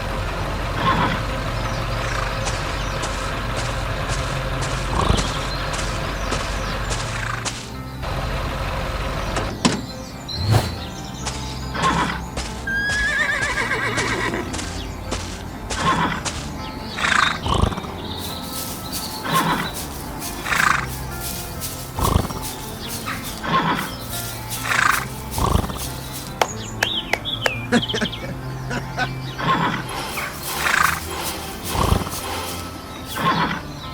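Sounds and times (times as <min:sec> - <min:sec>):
background music: 0:00.0 - 0:33.9
horse whinnying: 0:12.7 - 0:14.5.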